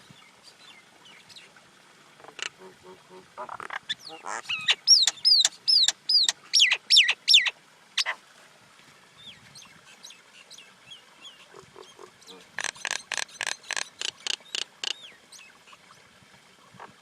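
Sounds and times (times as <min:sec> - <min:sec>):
myna calling: 0:02.2 - 0:08.2.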